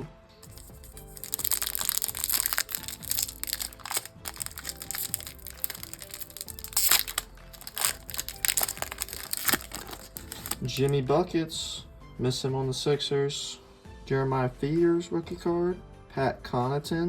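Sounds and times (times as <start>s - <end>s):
background music: 0.0s - 17.0s
foil wrapper crinkling: 0.4s - 11.0s.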